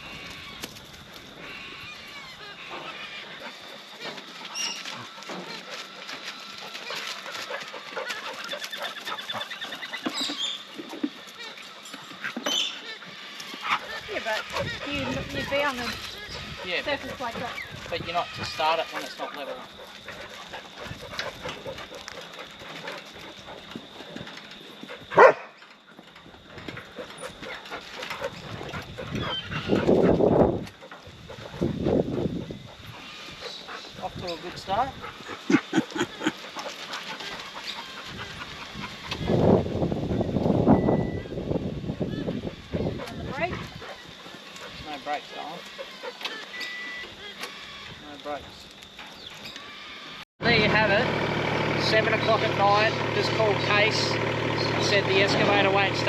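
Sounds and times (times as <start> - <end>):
birds calling: 0.0 - 56.0
dog barking: 25.2 - 25.6.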